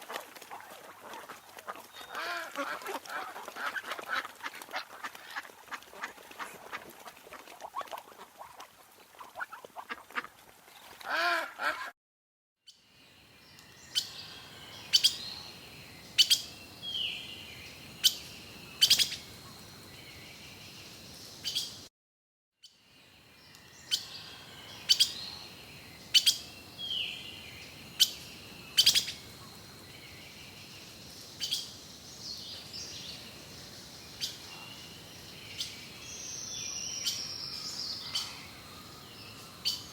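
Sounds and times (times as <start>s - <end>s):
ducks quacking: 1.0s - 6.5s
bird chirps: 13.5s - 20.8s, 23.4s - 30.6s, 34.0s - 39.9s.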